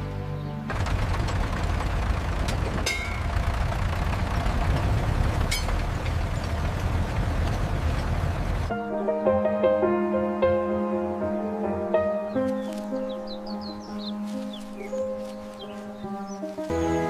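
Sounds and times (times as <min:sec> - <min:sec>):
music: 0:00.0 - 0:00.8, 0:08.7 - 0:17.0
motor engine rumbling: 0:00.0 - 0:08.8, 0:12.5 - 0:17.0.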